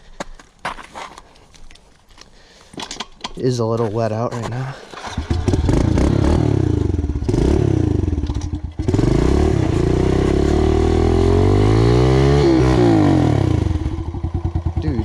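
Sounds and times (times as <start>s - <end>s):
pit bike engine revving: 5.0s - 15.0s.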